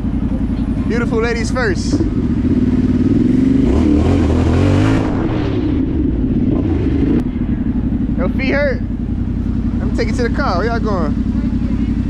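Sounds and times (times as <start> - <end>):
dirt bike engine idling and revving: 0.0 - 12.0.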